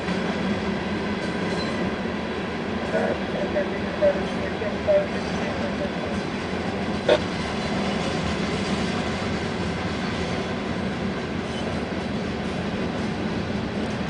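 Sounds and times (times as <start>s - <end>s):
freight train wheels on rails: 0.0s - 14.0s.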